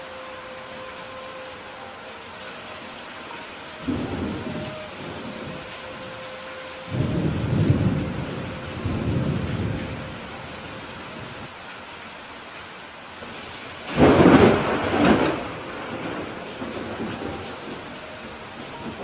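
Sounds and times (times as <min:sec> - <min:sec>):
steady rain: 0:00.0 - 0:19.0
rolling thunder: 0:03.8 - 0:05.9, 0:06.8 - 0:11.5, 0:13.9 - 0:19.0.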